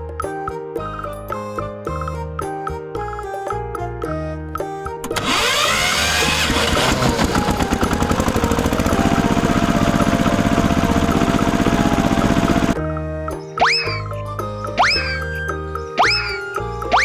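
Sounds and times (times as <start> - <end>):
small engine puttering: 5.0 - 12.8.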